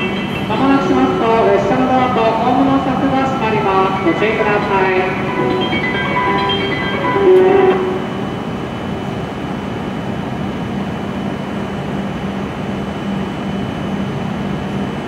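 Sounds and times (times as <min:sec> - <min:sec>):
short tone: 0:00.0 - 0:08.7.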